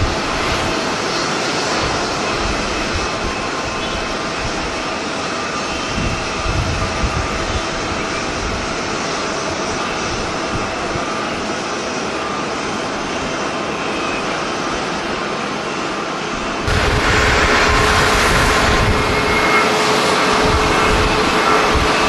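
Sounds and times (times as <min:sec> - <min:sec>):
wind buffeting microphone: 0:00.0 - 0:15.4, 0:16.2 - 0:22.0
jet engines running: 0:00.0 - 0:22.0.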